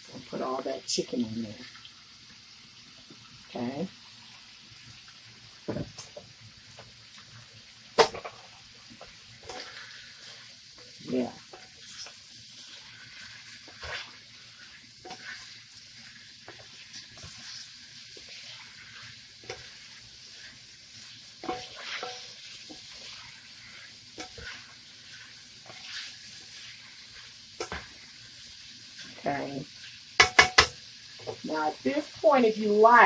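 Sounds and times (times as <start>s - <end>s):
chicken sizzling in a pan: 0.0s - 33.0s
spatula scraping and tapping pan: 8.0s - 31.5s.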